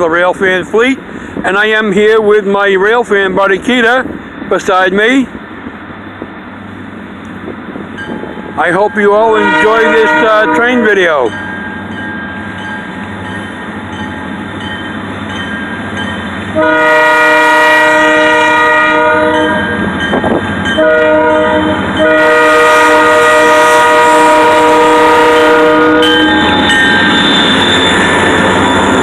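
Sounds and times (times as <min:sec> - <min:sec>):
train rumbling past: 0:00.0 - 0:29.0
locomotive air horn blasts: 0:09.3 - 0:11.0, 0:16.5 - 0:19.8, 0:20.6 - 0:26.8.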